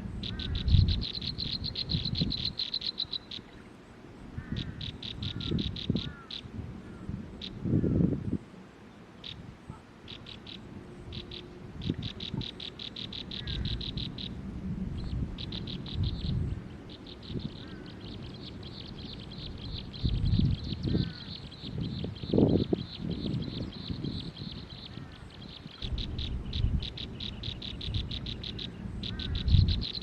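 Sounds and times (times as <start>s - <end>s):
small bird chirping: 0.2s - 3.7s, 4.5s - 6.5s, 9.2s - 9.4s, 10.0s - 14.4s, 15.0s - 30.0s.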